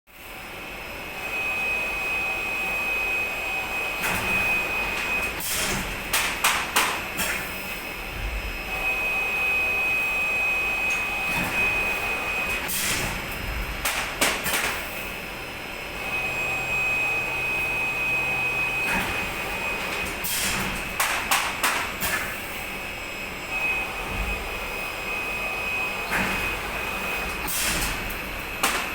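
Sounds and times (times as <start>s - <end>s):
machine high steady whine: 0.1s - 28.9s
sharp mechanical clacks: 5.4s - 7.4s, 13.8s - 14.9s, 19.9s - 22.3s.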